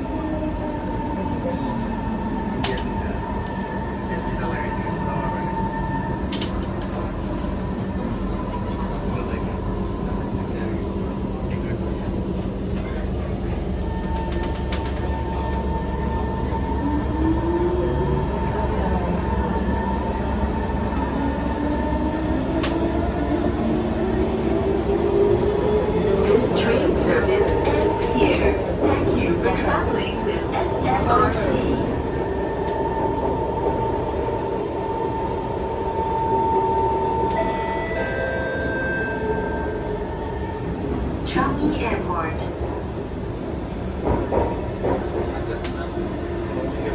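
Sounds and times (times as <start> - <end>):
train running: 0.0 - 46.9.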